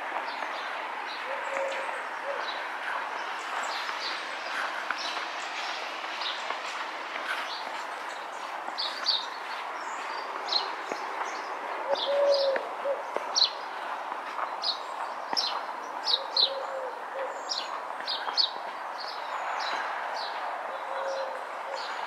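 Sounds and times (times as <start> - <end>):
small birds chirping: 0.2 - 22.0
pigeon cooing: 1.2 - 2.6, 11.8 - 13.1, 16.2 - 17.5, 20.7 - 22.0.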